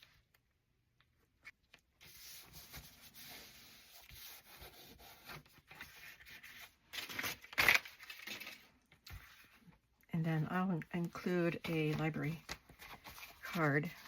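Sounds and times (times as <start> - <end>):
paper rubbing by hand: 2.0 - 6.7.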